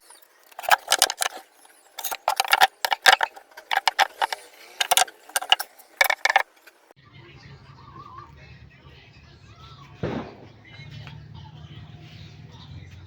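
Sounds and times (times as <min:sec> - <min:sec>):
objects clicking and clattering: 0:00.0 - 0:06.9.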